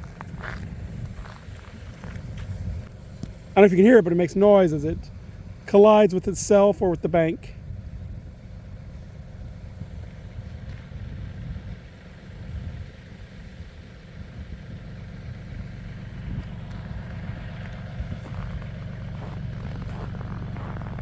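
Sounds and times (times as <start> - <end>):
steady low rumble: 0.0 - 21.0
river ice grinding: 16.2 - 21.0.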